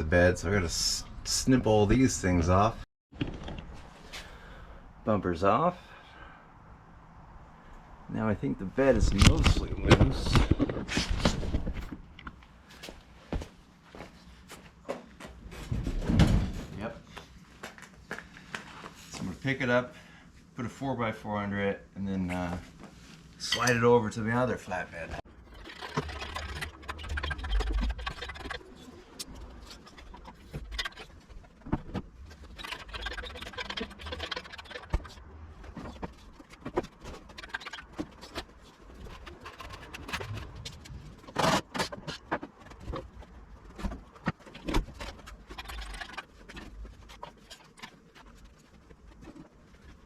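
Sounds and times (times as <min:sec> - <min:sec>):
low rumble: 0:39.6 - 0:41.4.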